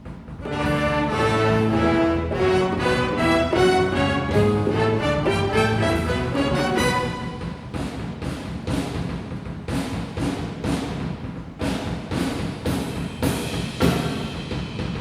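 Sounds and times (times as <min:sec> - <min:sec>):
drum kit cymbal and drum hits: 0:00.0 - 0:15.0
jazz big band music: 0:00.3 - 0:09.0
low bass line: 0:00.5 - 0:07.2.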